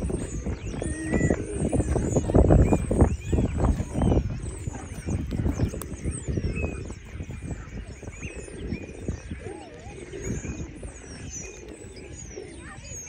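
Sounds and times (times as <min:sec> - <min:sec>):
low thumps and rumble: 0:00.0 - 0:09.4
low swooping bird call: 0:00.0 - 0:13.0
pond birds chirping and calling: 0:00.0 - 0:13.0.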